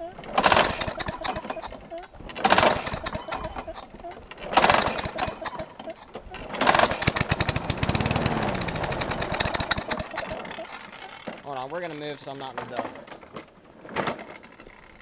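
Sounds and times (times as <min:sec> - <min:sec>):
mower engine running rough: 0:00.0 - 0:11.7
recoil starter pull cranking: 0:00.0 - 0:11.9.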